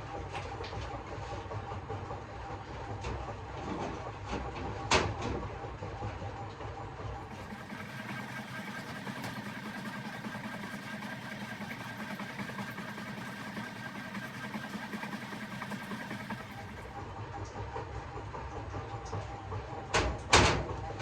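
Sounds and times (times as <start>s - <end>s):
household machine humming: 7.3s - 17.1s.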